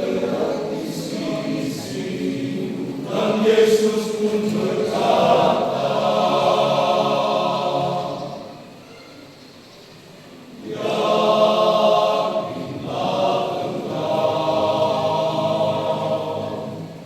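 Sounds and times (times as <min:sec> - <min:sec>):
men's choir singing a hymn: 0:00.0 - 0:08.7, 0:10.6 - 0:17.0.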